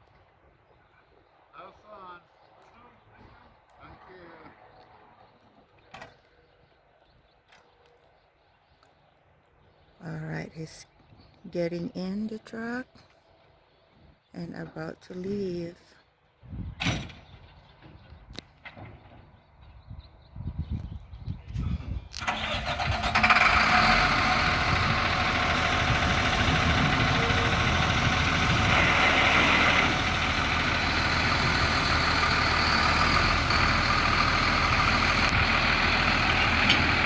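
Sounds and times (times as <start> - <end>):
diesel engine starting and running: 22.0 - 37.0.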